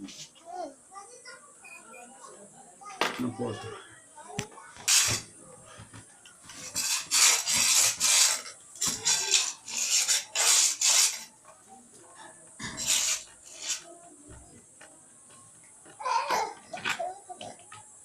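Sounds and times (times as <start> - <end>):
scraping strokes: 4.8 - 5.3, 6.4 - 11.4, 12.6 - 14.0.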